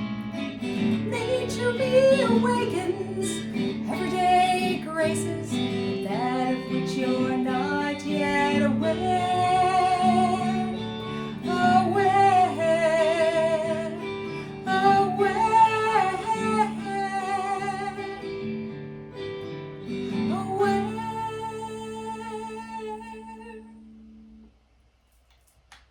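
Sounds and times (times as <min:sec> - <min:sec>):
acoustic guitar: 0:00.0 - 0:24.5
woman singing: 0:00.6 - 0:18.5, 0:20.1 - 0:24.0.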